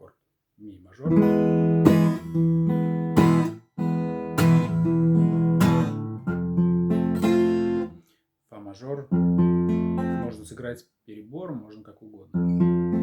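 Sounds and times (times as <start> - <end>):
acoustic guitar strumming: 1.1 - 8.0, 9.2 - 10.4, 12.4 - 13.0.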